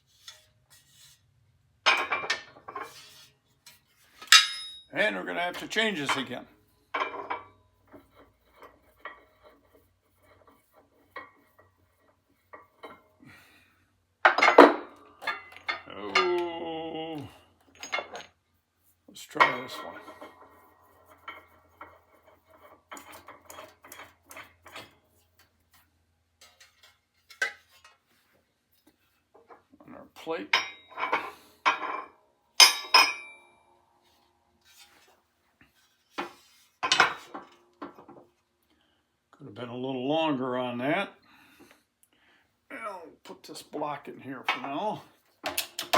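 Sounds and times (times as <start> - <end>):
metal parts clanking and knocking: 1.9 - 3.1, 4.2 - 4.9, 14.3 - 16.4, 17.7 - 18.4, 19.4 - 25.0, 30.6 - 33.4, 36.2 - 38.2, 44.5 - 45.9
small metal parts clinking: 4.2 - 4.9, 17.6 - 18.4
ringing metallic clink: 4.3 - 4.9, 32.6 - 33.5.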